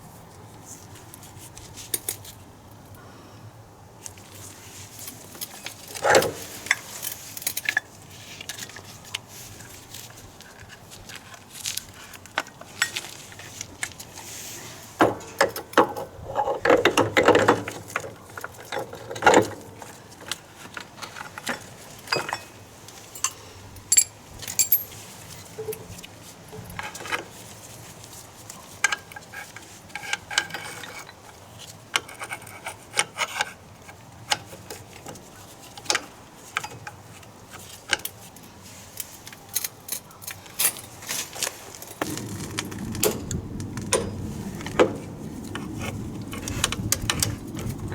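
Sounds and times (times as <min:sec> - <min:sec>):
metal tools clinking and scraping: 0:05.0 - 0:08.8, 0:20.7 - 0:26.0, 0:28.7 - 0:31.3, 0:37.6 - 0:43.3
rattling clatter of metal parts: 0:05.0 - 0:08.8, 0:15.0 - 0:27.4, 0:28.8 - 0:31.3, 0:39.0 - 0:47.9.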